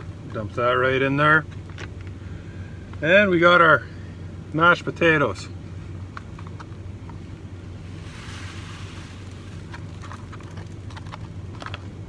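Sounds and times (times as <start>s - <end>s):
steady low hum: 0.0s - 12.0s
powder poured into plastic bag: 7.9s - 10.8s.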